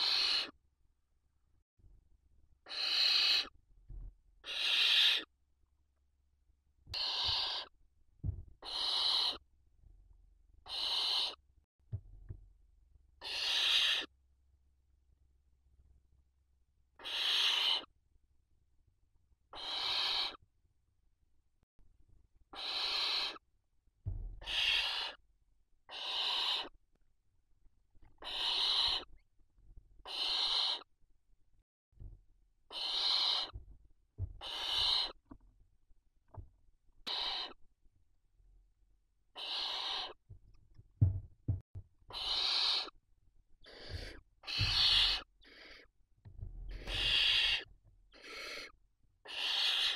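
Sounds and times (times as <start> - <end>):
owl chicks hissing: 0.0 - 0.6, 2.6 - 3.6, 4.4 - 5.3, 7.0 - 7.7, 8.6 - 9.5, 10.6 - 11.4, 13.2 - 14.1, 17.0 - 17.9, 19.5 - 20.4, 22.5 - 23.4, 24.4 - 25.2, 25.9 - 26.8, 28.2 - 29.2, 30.0 - 30.9, 32.7 - 33.6, 34.4 - 35.2, 37.0 - 37.6, 39.3 - 40.2, 42.1 - 43.0, 43.6 - 46.0, 46.7 - 49.9
low thumps: 41.0 - 41.9.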